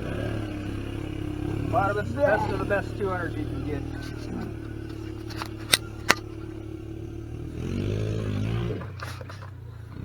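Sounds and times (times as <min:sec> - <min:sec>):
engine running: 0:00.0 - 0:10.0
sharp clicks: 0:05.3 - 0:06.3.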